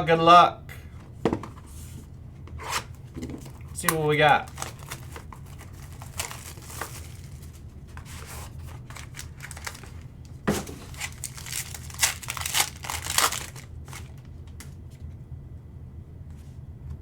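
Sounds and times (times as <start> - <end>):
cards rustling and clicking: 2.6 - 14.8
wrapper tearing and crinkling: 4.4 - 14.3.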